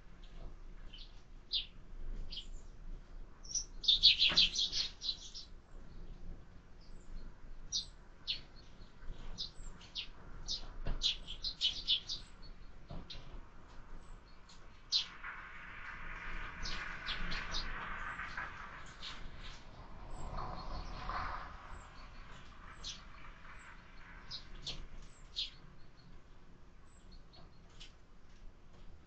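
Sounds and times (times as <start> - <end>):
birds chirping: 3.4 - 6.1, 6.8 - 13.3, 14.0 - 15.1, 21.7 - 26.2.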